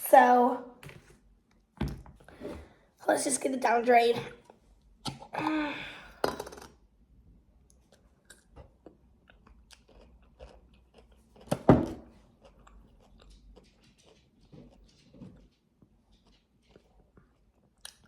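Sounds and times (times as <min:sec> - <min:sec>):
person chewing: 0:07.7 - 0:15.3, 0:16.1 - 0:18.0.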